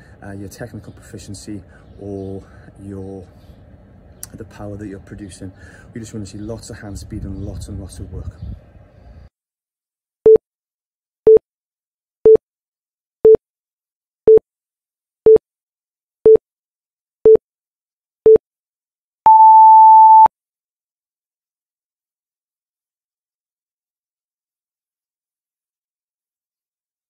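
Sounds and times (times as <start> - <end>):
long high beep: 19.3 - 20.3
short electronic beeps: 19.3 - 20.3.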